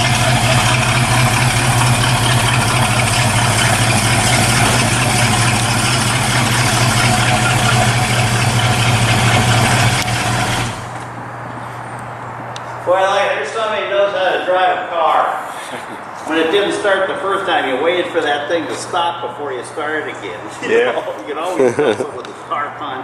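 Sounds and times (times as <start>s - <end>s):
car engine idling: 0.0s - 11.2s.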